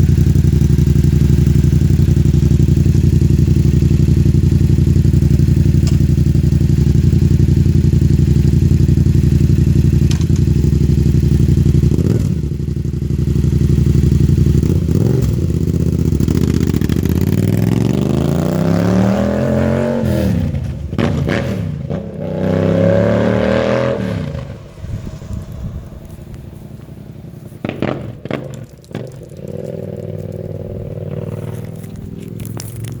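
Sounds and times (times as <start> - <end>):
motorcycle engine idling: 0.0 - 17.6, 24.4 - 28.5, 29.4 - 33.0
motorcycle accelerating: 0.0 - 33.0.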